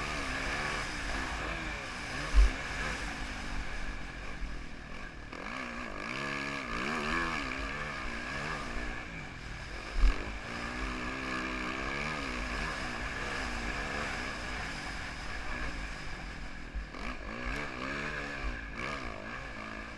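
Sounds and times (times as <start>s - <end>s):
motorbike engine revving: 0.0s - 19.9s.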